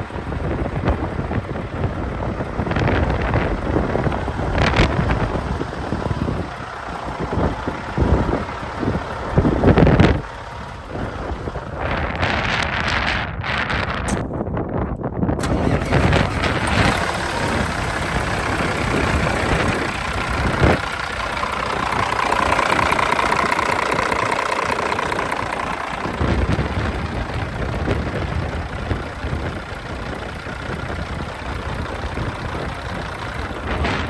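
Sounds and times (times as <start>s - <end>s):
truck diesel engine running: 0.0s - 14.1s, 15.3s - 34.0s.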